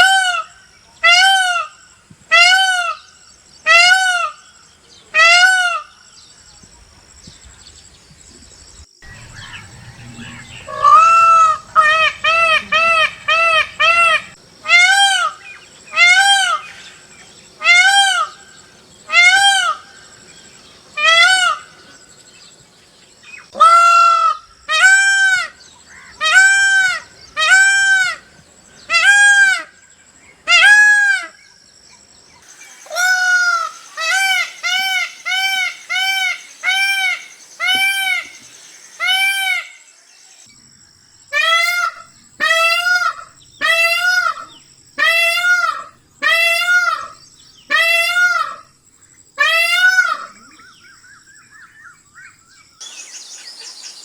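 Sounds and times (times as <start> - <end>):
peacock calling: 0.0 - 6.2, 9.0 - 40.5, 41.3 - 48.7, 49.4 - 54.0.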